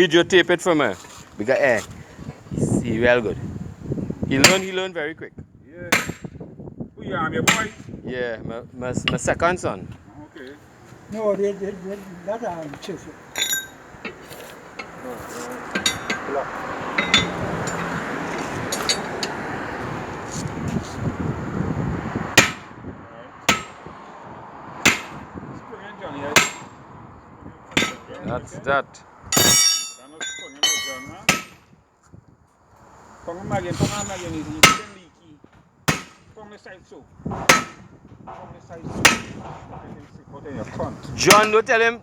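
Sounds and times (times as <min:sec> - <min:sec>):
hammer striking metal: 0:04.4 - 0:04.8, 0:07.5 - 0:07.8, 0:13.4 - 0:13.8, 0:15.7 - 0:17.9, 0:22.4 - 0:22.7, 0:23.5 - 0:23.8, 0:24.9 - 0:25.2, 0:26.4 - 0:26.7, 0:27.8 - 0:28.2, 0:29.4 - 0:31.6, 0:34.6 - 0:35.0, 0:35.9 - 0:36.3, 0:37.5 - 0:37.9, 0:39.1 - 0:39.4.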